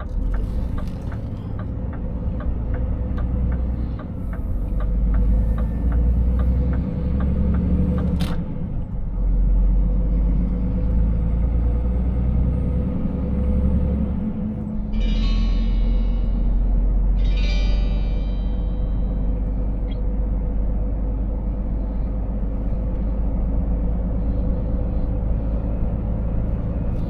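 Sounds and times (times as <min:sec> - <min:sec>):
turn indicator ticking: 0:00.0 - 0:08.5
diesel truck engine rumble: 0:00.0 - 0:27.0.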